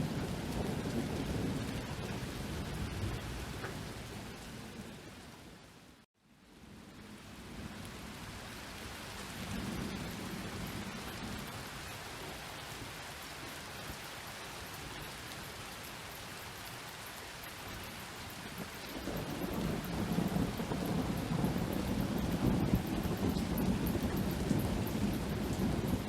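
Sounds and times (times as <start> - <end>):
low rolling thunder: 0.0 - 5.0, 7.1 - 12.8, 18.4 - 26.0
rain falling: 0.0 - 26.0.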